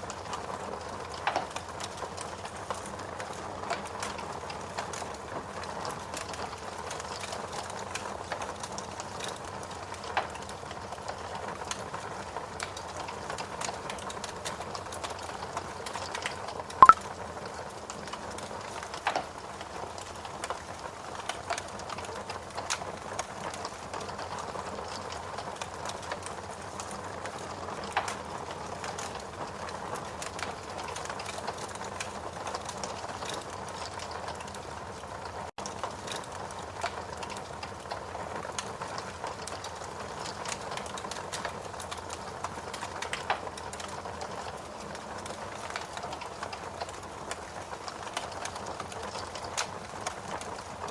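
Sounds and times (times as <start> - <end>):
wood fire crackling: 0.0 - 16.5, 17.8 - 50.9
steady rain: 0.0 - 50.9.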